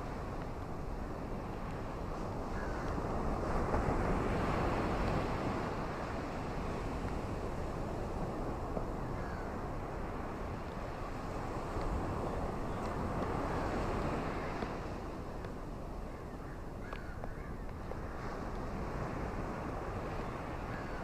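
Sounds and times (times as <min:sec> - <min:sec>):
ocean waves washing onto beach: 0:00.0 - 0:21.0.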